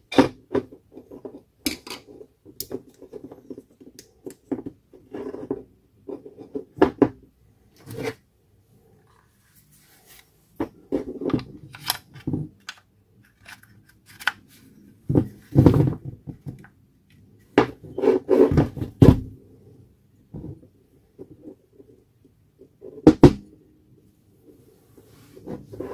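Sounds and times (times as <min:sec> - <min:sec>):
plastic and metal parts clicking: 0:11.3 - 0:14.5.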